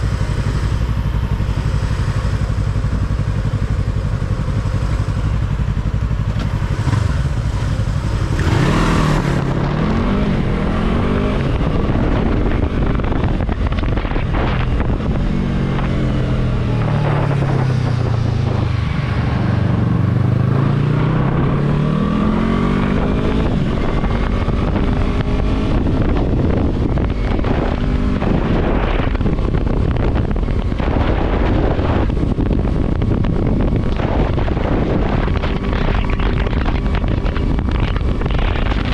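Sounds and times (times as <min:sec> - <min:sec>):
motorcycle engine on the move: 0:00.0 - 0:38.9
wind rushing over microphone: 0:00.0 - 0:38.9.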